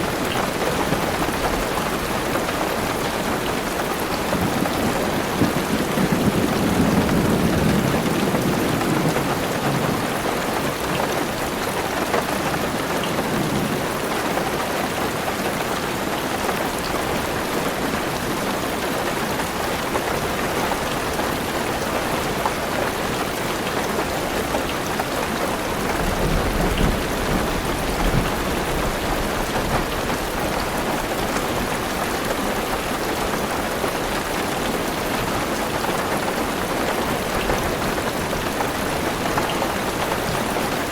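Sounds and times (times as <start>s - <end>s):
heavy rain on a car roof: 0.0s - 40.9s
thunder rumbling: 4.2s - 10.8s.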